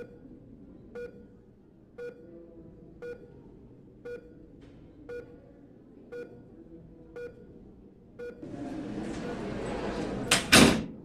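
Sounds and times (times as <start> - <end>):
patient monitor beeping: 0.0 - 2.4, 3.0 - 5.5, 6.1 - 9.4.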